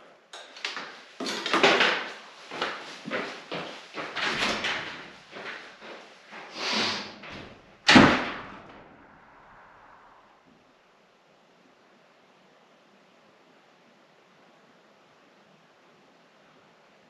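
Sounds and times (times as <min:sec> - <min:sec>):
knocks and clatter: 0:04.0 - 0:06.0
door banging shut: 0:04.1 - 0:05.2, 0:07.0 - 0:09.1.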